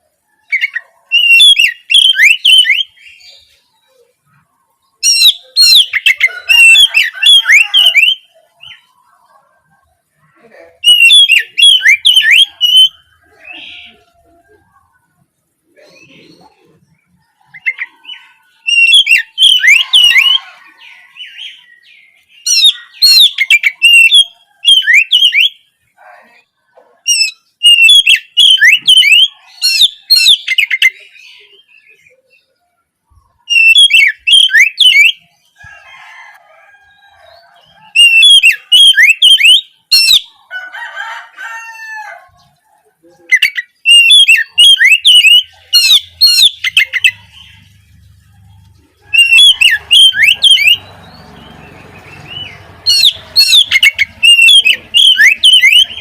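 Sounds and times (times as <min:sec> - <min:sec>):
bird singing sweeping notes: 0:00.0 - 0:09.2, 0:10.2 - 0:14.6, 0:15.6 - 0:25.8, 0:27.1 - 0:35.5, 0:37.3 - 0:40.4, 0:43.3 - 0:56.0
quiet low bird calls: 0:00.0 - 0:40.5.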